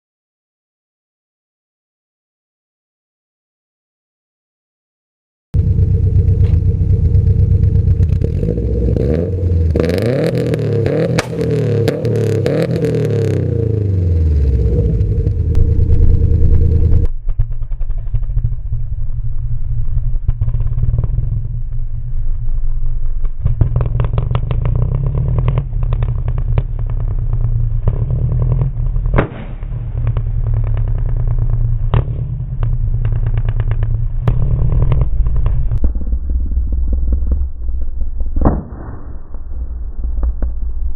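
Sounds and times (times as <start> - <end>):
car engine revving: 5.6 - 35.8
exhaust pops: 5.6 - 40.9.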